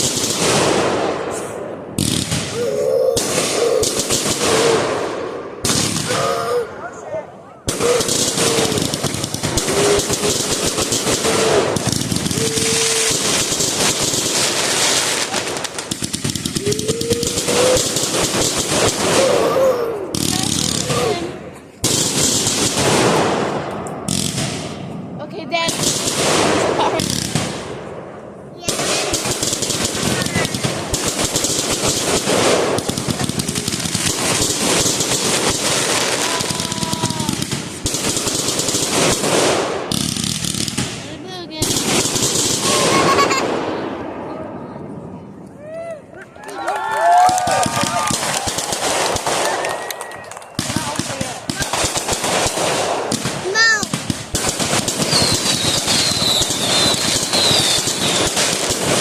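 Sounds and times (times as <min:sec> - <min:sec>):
fireworks popping and crackling: 0:00.0 - 0:06.3, 0:07.6 - 0:59.0
thin firework whistle: 0:49.4 - 0:50.6, 0:55.1 - 0:58.2.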